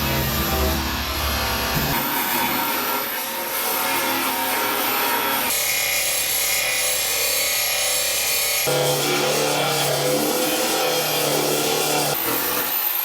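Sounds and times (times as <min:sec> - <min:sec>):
air belt file grinding metal: 0:00.0 - 0:13.0.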